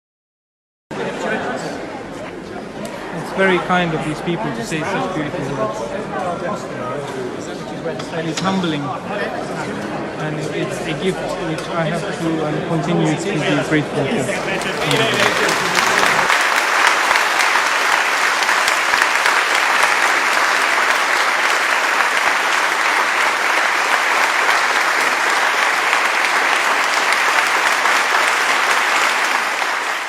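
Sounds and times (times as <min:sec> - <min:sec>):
audience applauding: 0:14.3 - 0:30.0.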